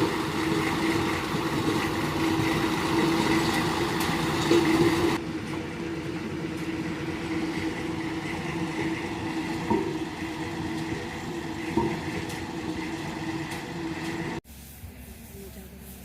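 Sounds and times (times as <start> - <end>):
diesel engine running: 0.0 - 14.4.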